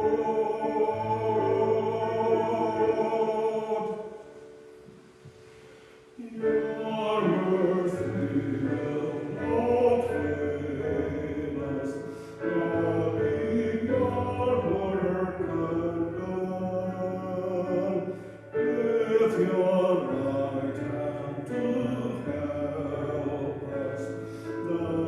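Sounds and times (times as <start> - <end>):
hymn singing: 0.0 - 25.0.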